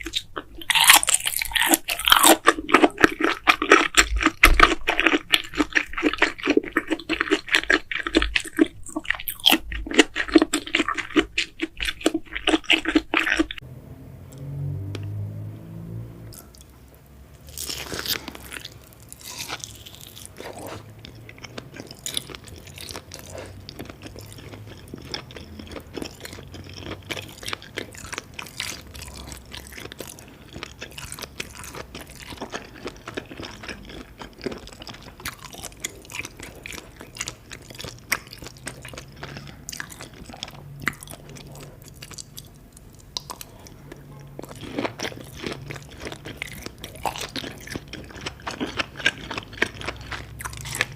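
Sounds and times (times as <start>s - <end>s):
wet chewing mouth clicks: 0.0s - 13.6s.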